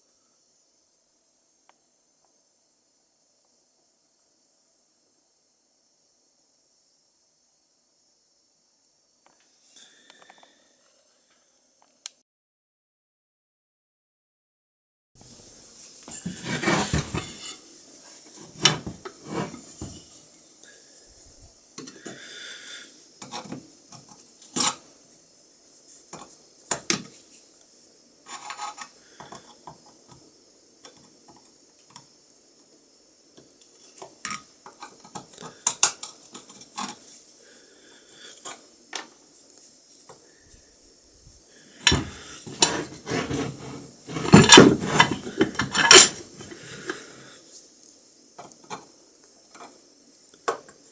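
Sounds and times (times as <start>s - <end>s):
metal scraping: 16.1s - 20.2s, 41.8s - 47.0s
metal parts clinking: 44.2s - 46.2s.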